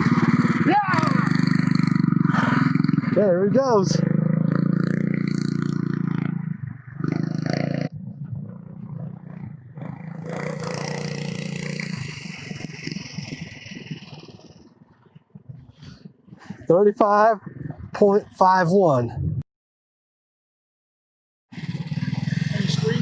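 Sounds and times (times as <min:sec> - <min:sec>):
minibike engine revving: 0:00.0 - 0:14.8, 0:21.5 - 0:23.0.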